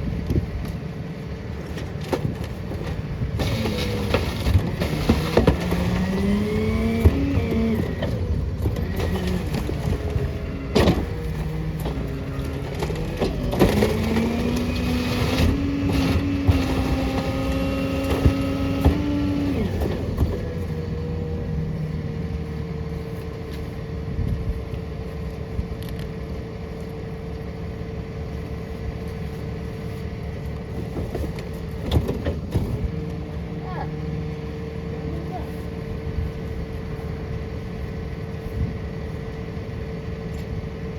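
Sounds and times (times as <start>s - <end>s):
garbage truck engine: 0.0s - 40.9s
bangs and crunches from hopper: 3.4s - 20.5s.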